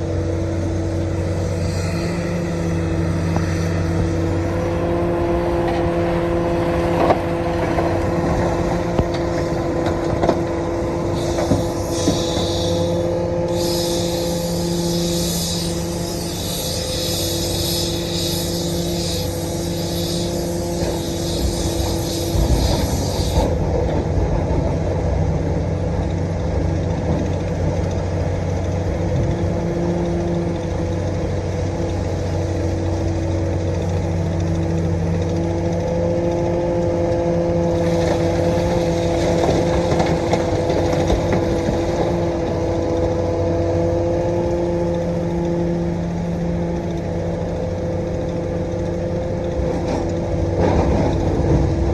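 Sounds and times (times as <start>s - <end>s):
high hissing: 0.0s - 23.6s, 37.7s - 42.4s
excavator diesel engine running: 0.0s - 51.9s.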